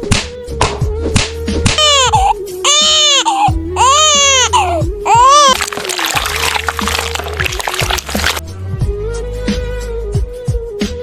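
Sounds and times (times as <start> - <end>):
high wailing cry: 1.8 - 7.1
dense splashy noise: 5.2 - 8.4.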